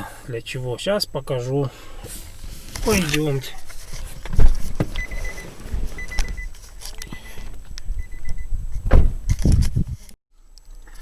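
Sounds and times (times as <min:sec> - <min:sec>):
handling thumps and knocks: 0:02.7 - 0:07.7, 0:08.8 - 0:09.8.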